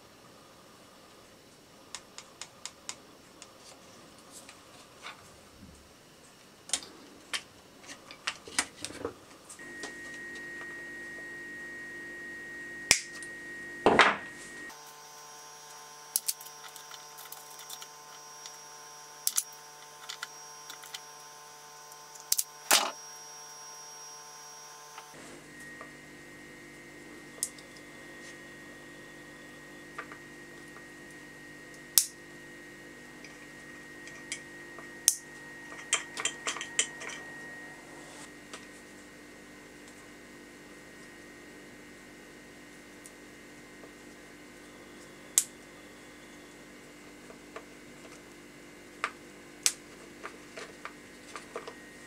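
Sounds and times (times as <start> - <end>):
steady background hum: 0.0 - 52.0.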